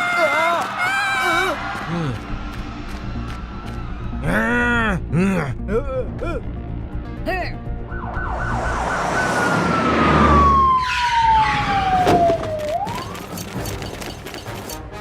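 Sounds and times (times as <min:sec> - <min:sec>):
police siren wailing: 0:07.8 - 0:13.5
loud rushing noise: 0:07.9 - 0:12.0.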